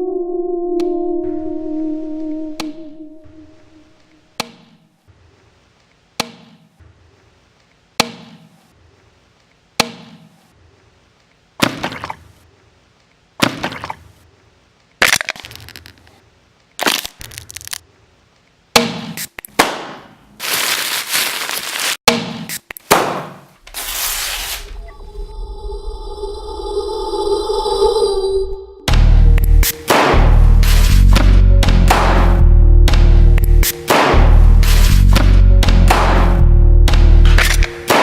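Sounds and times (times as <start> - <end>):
cracking and breaking noises: 15.0 - 16.2, 16.8 - 17.8.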